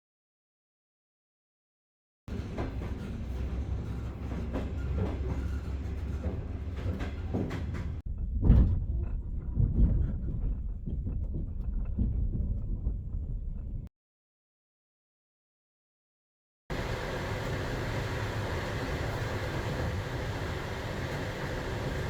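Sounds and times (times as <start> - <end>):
wheels knocking over rail joints: 2.3 - 13.8
train wheels rumbling: 2.3 - 13.9, 16.7 - 22.0.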